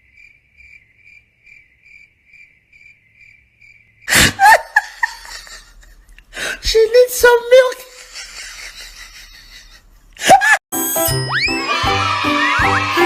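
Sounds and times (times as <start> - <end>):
cricket chirping: 0.0 - 4.1.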